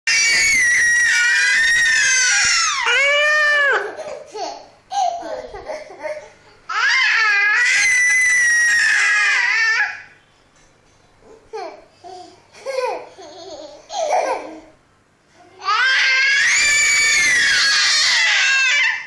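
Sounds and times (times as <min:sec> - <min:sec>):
infant high-pitched shrieks: 0:00.1 - 0:03.8, 0:06.8 - 0:10.0, 0:15.7 - 0:19.0.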